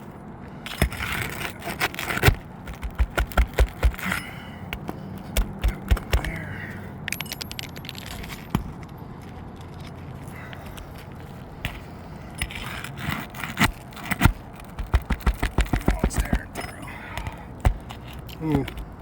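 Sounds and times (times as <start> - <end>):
metal tools scraping shingles: 0.6 - 9.0, 9.7 - 19.0
metal tools knocking on shingles: 14.7 - 19.0.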